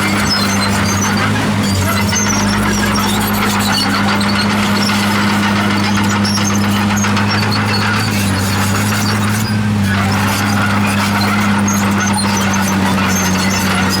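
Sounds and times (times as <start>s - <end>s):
bulldozer diesel engine running: 0.0s - 14.0s
steel tracks squeaking: 0.0s - 14.0s.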